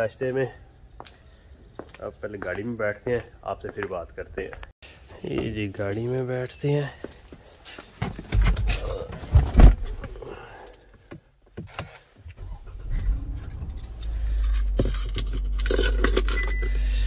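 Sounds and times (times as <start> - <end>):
knocks and rustles in car seat: 8.0 - 10.2
thump: 9.3 - 10.0
car engine idling: 12.3 - 16.2
short electronic beep: 16.4 - 17.0.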